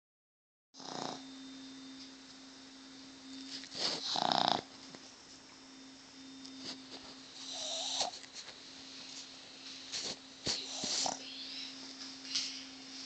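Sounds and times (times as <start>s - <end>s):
dog snoring loudly: 0.8s - 1.3s, 3.7s - 4.7s, 7.4s - 8.2s, 10.4s - 11.2s.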